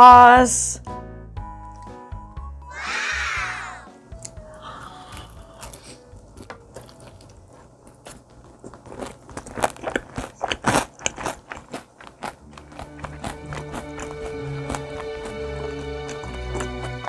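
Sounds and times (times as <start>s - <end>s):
light music: 0.0s - 7.7s, 12.3s - 17.0s
chewing crispy fried chicken: 4.1s - 17.0s.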